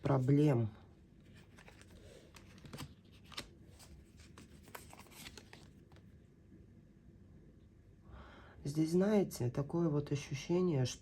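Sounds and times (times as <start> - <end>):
cards rustling and clicking: 1.3 - 6.2.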